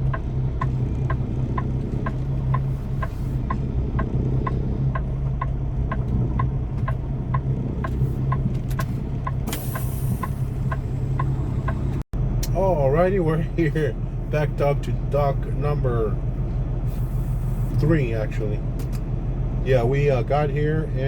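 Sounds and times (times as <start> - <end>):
diesel truck engine idling: 0.0 - 21.0
air brake hiss: 9.5 - 10.4.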